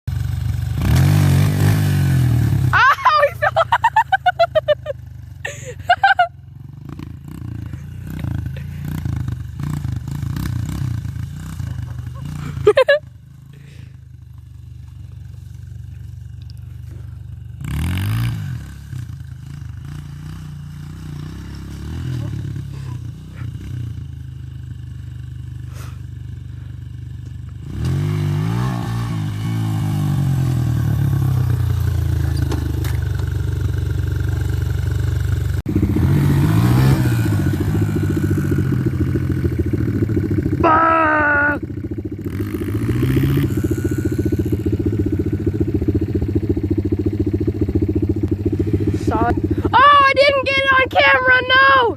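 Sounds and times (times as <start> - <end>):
dirt bike engine revving: 0.1 - 51.9.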